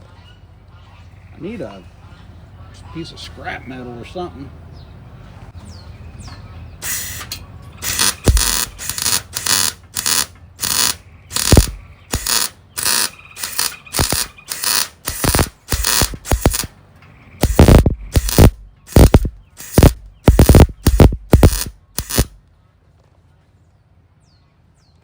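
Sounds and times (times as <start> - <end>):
welder crackling buzzes: 6.8 - 16.7, 17.4 - 22.4.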